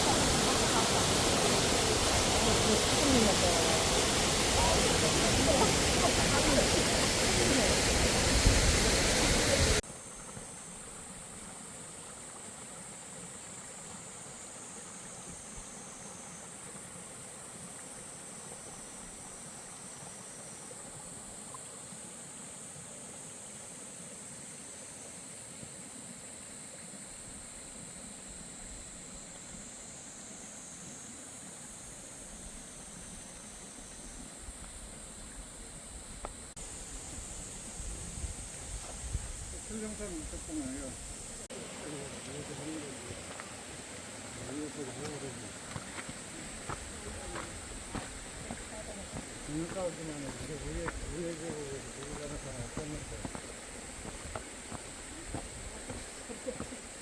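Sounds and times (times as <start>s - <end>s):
rushing waterfall: 0.0s - 15.6s, 36.6s - 57.0s
faint high hiss: 0.0s - 57.0s.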